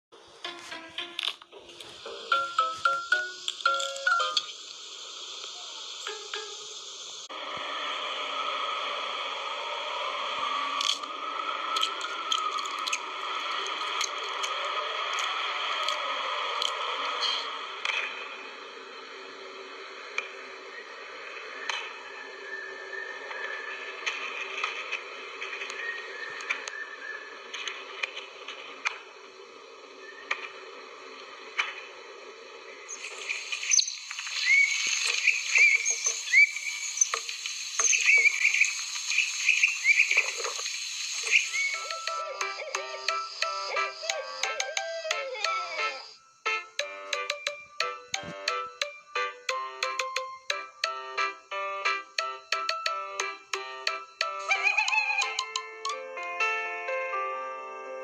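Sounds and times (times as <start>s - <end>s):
steady hiss: 1.5s - 44.6s
small birds chirping: 32.8s - 46.2s.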